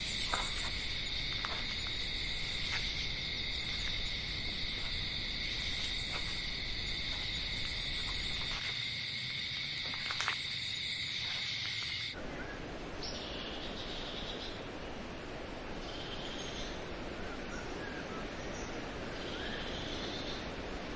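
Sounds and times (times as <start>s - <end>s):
shrill insect chorus: 0.0s - 12.2s.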